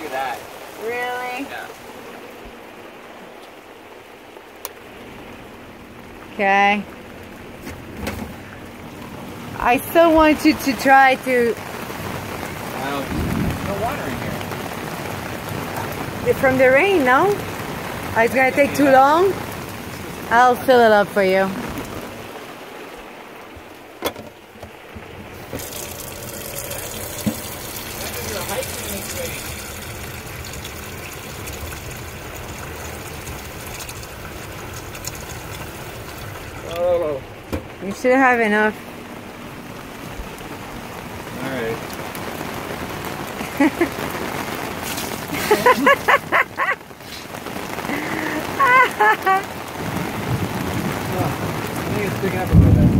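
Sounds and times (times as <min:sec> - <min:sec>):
steady rain: 0:00.0 - 0:52.9
water rushing from a tap: 0:25.4 - 0:36.8.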